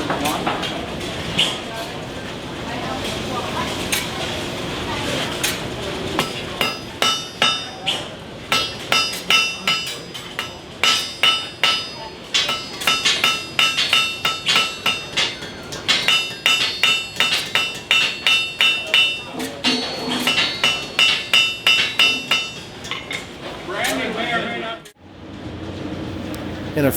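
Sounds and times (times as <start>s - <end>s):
hammer striking iron on anvil: 6.2s - 24.1s
anvil ringing: 6.2s - 24.2s.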